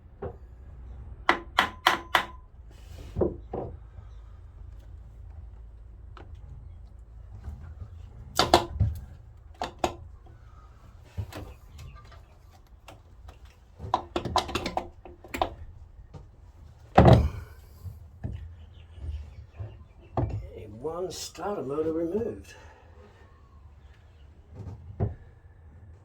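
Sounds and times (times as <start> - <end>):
metallic knocks and clunks: 7.7 - 10.2, 13.8 - 15.7, 16.9 - 20.5
heavy thud: 17.0 - 17.9.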